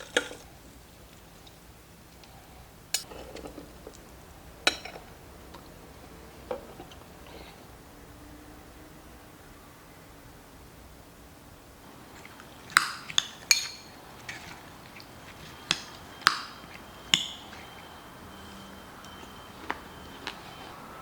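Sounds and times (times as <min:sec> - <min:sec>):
utensils clinking against dishes: 0:02.9 - 0:05.7, 0:11.8 - 0:20.8.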